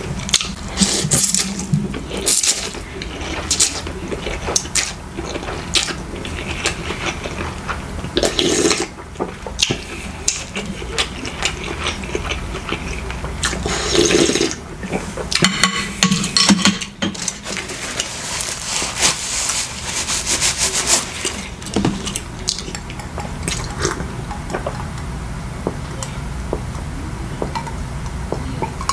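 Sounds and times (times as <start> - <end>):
wet chewing and slurping: 0.2 - 15.4
clatter of handling food: 14.8 - 24.9.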